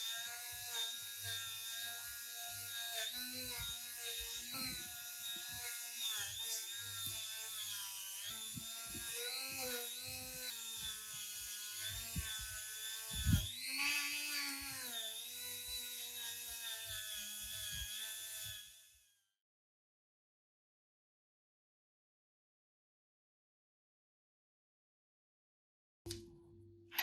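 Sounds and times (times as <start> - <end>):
power tool motor whining: 0.0 - 19.1.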